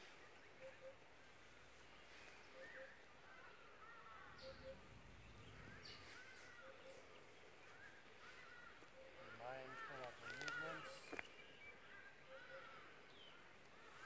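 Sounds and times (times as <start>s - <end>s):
faint birdsong: 0.0s - 14.0s
low rumble: 4.8s - 6.1s.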